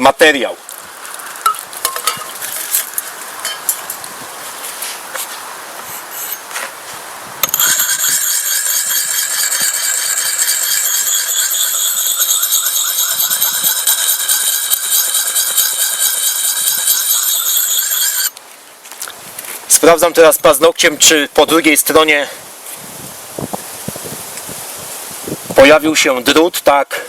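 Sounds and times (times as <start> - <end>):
whetstone scraping axe edge: 7.4 - 18.3
high-pitched squeal: 7.4 - 18.4.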